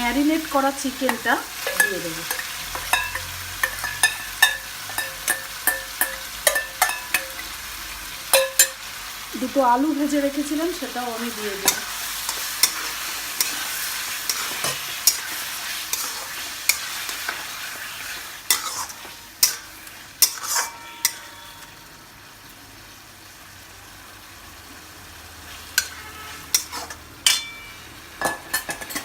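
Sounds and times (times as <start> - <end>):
food sizzling in oil: 0.0 - 29.0
spatula knocking and scraping pan: 1.1 - 7.5, 11.6 - 17.5, 18.1 - 21.2.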